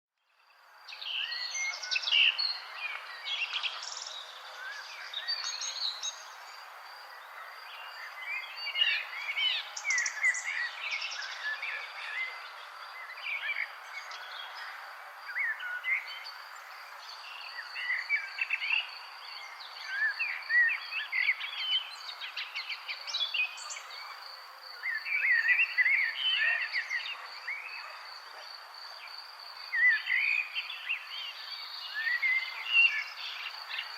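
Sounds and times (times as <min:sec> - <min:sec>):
birds chirping and trilling: 0:00.4 - 0:33.9.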